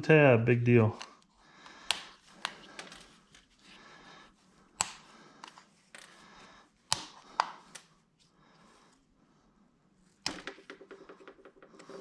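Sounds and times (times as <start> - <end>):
plastic snapping and clicking: 1.0 - 3.0, 4.8 - 6.1, 6.9 - 7.9.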